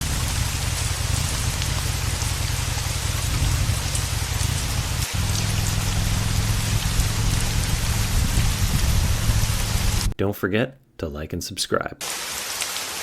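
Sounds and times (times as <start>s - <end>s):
heavy rain falling: 0.0s - 10.2s, 12.0s - 13.0s
low rumble: 0.0s - 10.2s.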